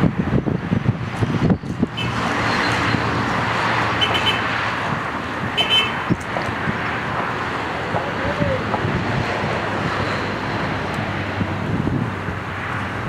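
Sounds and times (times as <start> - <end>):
turboprop engine drone: 0.0 - 13.0
wind buffeting microphone: 0.0 - 13.0.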